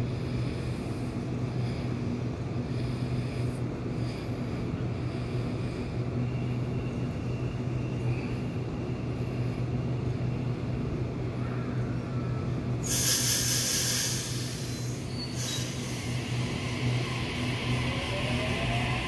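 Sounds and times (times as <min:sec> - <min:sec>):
train equipment humming: 0:00.0 - 0:19.0
air brakes hissing: 0:12.8 - 0:18.4.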